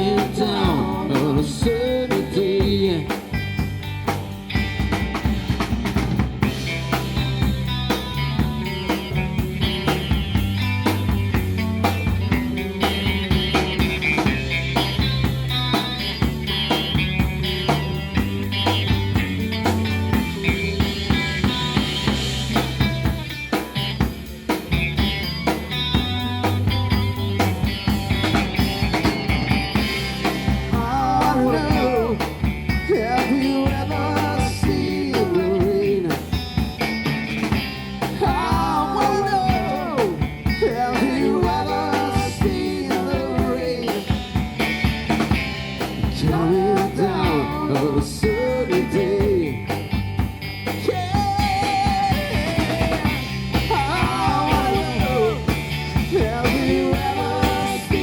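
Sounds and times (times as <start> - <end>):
rock band playing: 0.0 - 58.0
sliding lead melody: 2.7 - 46.2.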